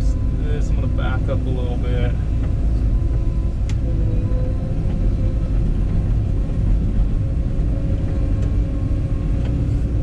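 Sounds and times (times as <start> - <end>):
excavator diesel engine rumble: 0.0 - 10.0.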